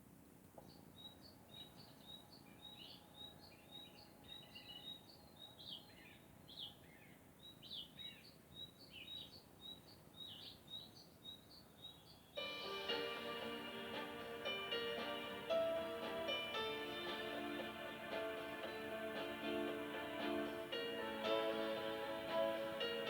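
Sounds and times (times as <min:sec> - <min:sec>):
faint birdsong chirps: 0:00.5 - 0:23.0.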